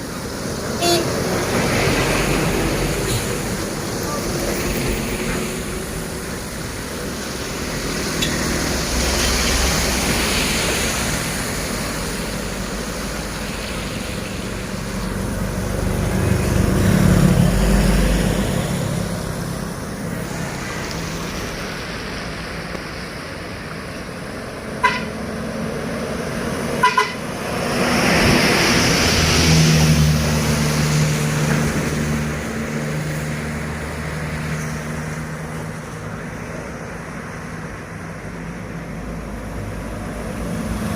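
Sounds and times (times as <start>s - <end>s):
diesel engines passing: 0.0s - 40.9s
tyre hiss on wet road: 0.0s - 40.9s
vehicle horn toots: 0.8s - 1.1s, 24.8s - 25.2s, 26.8s - 27.2s.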